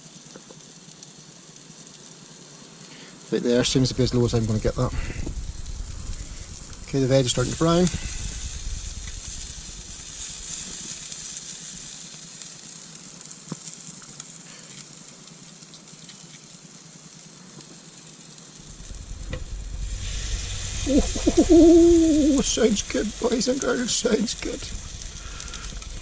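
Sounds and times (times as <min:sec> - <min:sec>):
omelette sizzling in a pan: 0:00.0 - 0:26.0
small ticks: 0:12.4 - 0:17.8.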